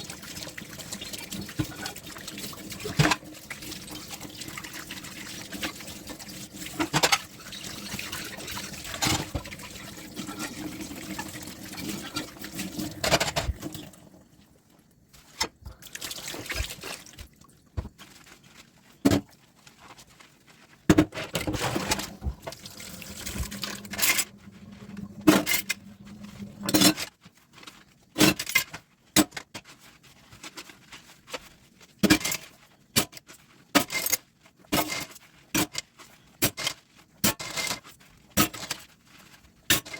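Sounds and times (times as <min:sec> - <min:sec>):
tap water running into sink: 0:00.0 - 0:14.2, 0:21.5 - 0:26.8.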